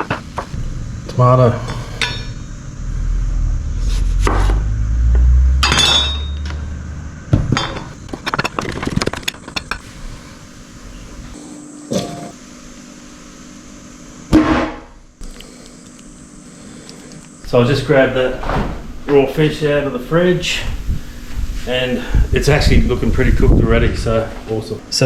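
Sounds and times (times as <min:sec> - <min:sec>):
low rumble: 0:00.5 - 0:07.6
dishes and utensils clinking: 0:05.6 - 0:06.4, 0:11.9 - 0:12.4.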